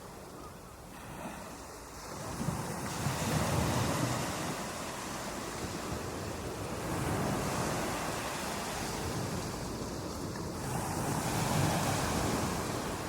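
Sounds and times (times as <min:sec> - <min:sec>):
ocean surf breaking: 0:00.8 - 0:13.0.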